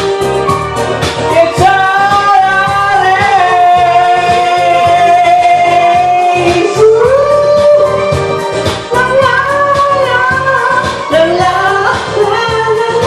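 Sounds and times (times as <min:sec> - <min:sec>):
pop backing track with beat: 0:00.0 - 0:13.0.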